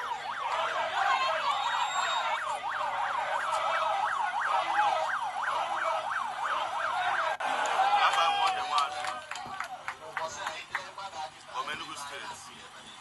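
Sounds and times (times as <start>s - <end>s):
electronic siren yelping: 0.0s - 7.4s.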